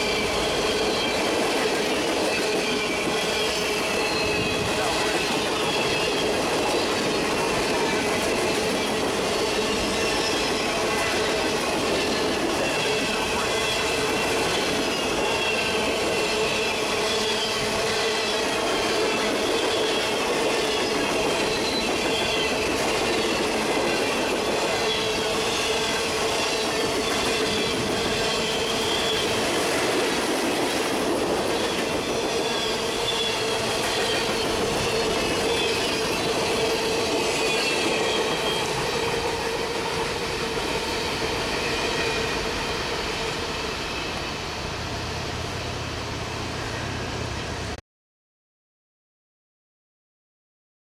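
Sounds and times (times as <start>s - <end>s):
wheels squealing: 0.0s - 11.3s, 31.5s - 44.2s
train wheels rumbling on rail: 0.0s - 47.8s.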